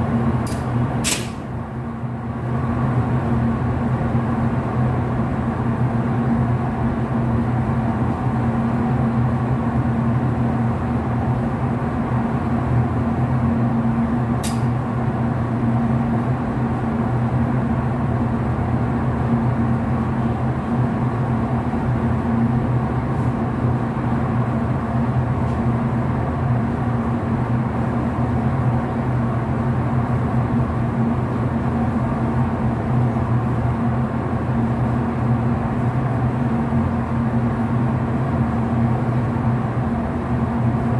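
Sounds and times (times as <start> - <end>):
elevator machinery hum: 0.0 - 40.9
sharp click: 0.4 - 1.5, 14.4 - 14.7.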